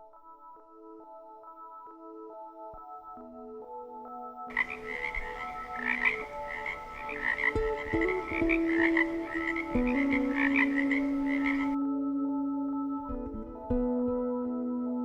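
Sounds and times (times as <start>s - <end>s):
soft background music: 0.0s - 15.0s
chorus of small animal calls: 4.5s - 11.8s.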